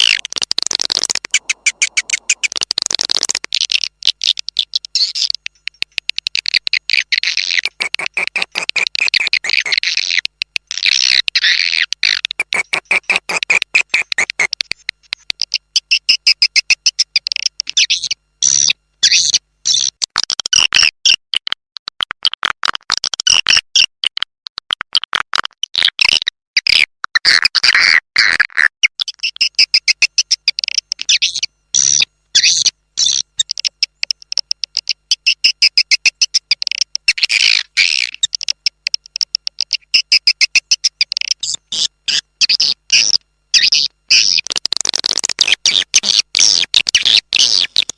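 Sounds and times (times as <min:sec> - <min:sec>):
swiftlets chirping and twittering: 0:00.0 - 0:05.5.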